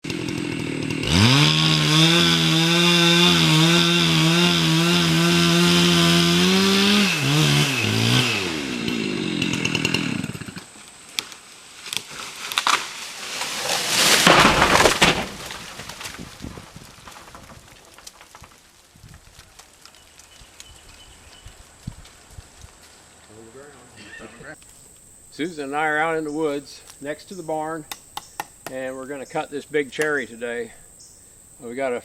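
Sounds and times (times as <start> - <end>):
chainsaw revving: 0.0 - 10.7
sharp wood cracks: 0.1 - 23.4, 27.8 - 28.9
loud crash: 13.5 - 16.2.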